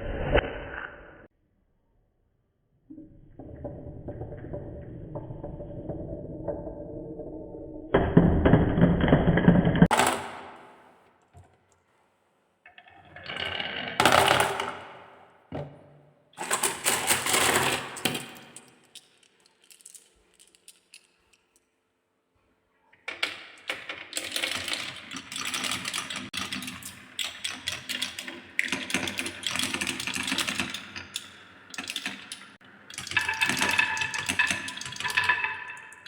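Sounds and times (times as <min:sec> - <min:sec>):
marbles rolling down wooden run: 0:13.0 - 0:15.2, 0:16.4 - 0:21.1, 0:23.1 - 0:36.0
rapid clicking of balls: 0:13.2 - 0:15.2, 0:16.4 - 0:21.6, 0:23.0 - 0:36.0.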